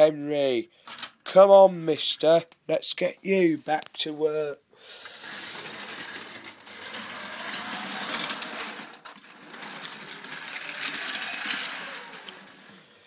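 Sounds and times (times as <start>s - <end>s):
toy train motor whirring: 4.8s - 13.0s.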